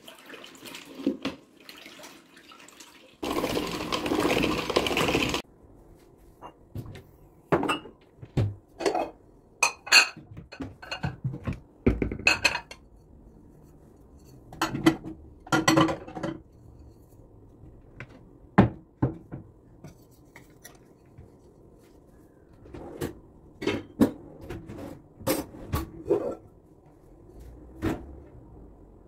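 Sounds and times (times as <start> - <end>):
dishes and cutlery clinking: 8.8 - 12.9, 14.1 - 16.6.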